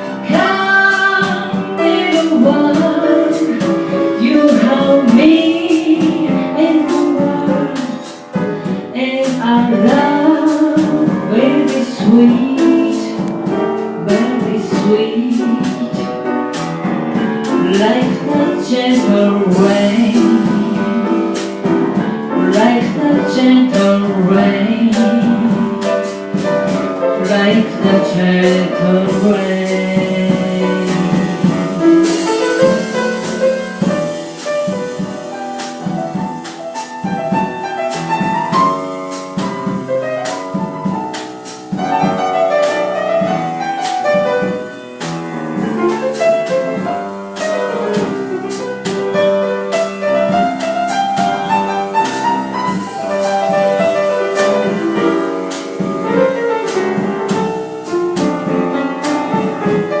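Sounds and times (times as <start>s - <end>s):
drum kit beat: 0.0s - 60.0s
jazz piano solo: 0.0s - 60.0s.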